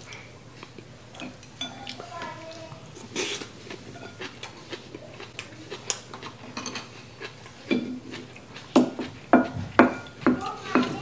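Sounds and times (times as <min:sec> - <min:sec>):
close-up chewing with mouth clicks: 0:00.0 - 0:10.7.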